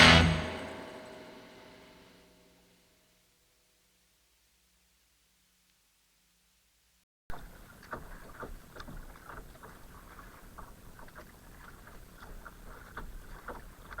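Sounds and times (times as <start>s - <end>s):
water patter against hull: 7.3s - 14.0s.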